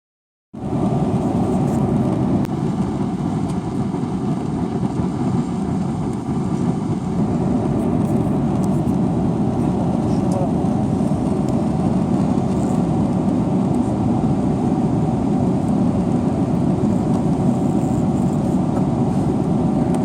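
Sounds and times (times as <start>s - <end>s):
airliner cabin rumble: 0.6s - 20.0s.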